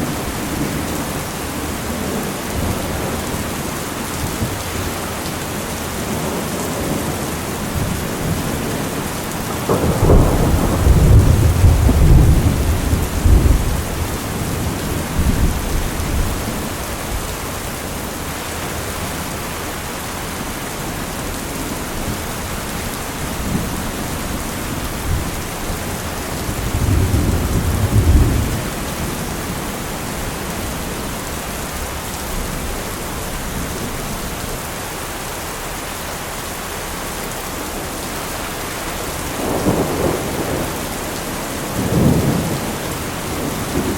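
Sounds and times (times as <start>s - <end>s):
heavy rain: 0.0s - 43.9s
rolling thunder: 7.7s - 17.4s, 22.0s - 31.0s, 39.1s - 43.9s.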